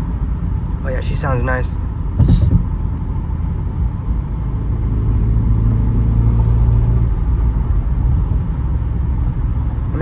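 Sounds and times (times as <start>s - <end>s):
car exhaust rumble: 2.2s - 5.1s.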